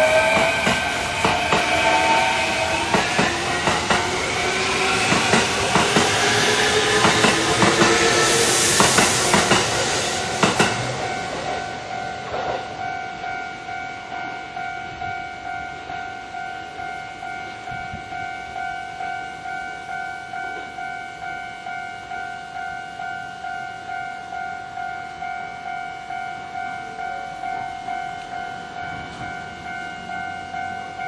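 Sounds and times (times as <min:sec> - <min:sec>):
train motor whine: 0:00.0 - 0:11.9
crossing bell ringing: 0:00.0 - 0:31.0
wheels clacking over rail joints: 0:02.7 - 0:12.8.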